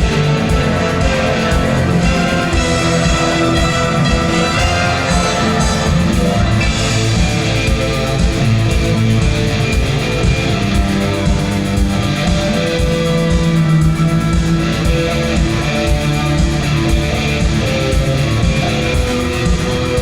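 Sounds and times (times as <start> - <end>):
held orchestral notes: 0.0 - 8.6
steady drum beat: 0.0 - 20.0
strummed electric guitar: 0.0 - 20.0.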